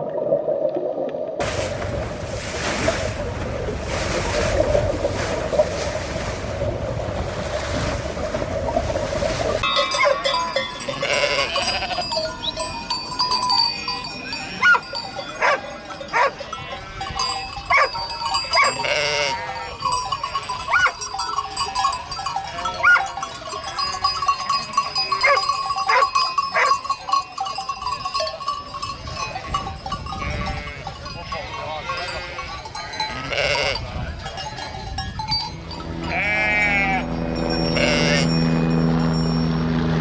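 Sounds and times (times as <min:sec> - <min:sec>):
steady ringing tones: 0:09.6 - 0:40.0
flock bleating: 0:10.8 - 0:12.2, 0:18.7 - 0:19.6, 0:30.2 - 0:33.8, 0:36.0 - 0:37.1, 0:37.7 - 0:38.4.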